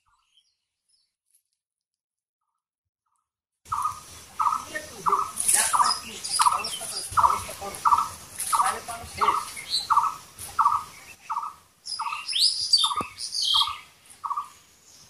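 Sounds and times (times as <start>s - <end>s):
high bird chirps and whistles: 3.7s - 14.5s.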